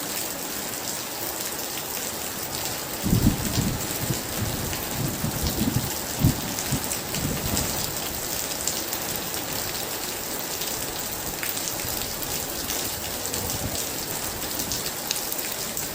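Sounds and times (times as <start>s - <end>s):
heavy rain falling: 0.0s - 15.9s
thunder rumbling: 3.0s - 8.1s.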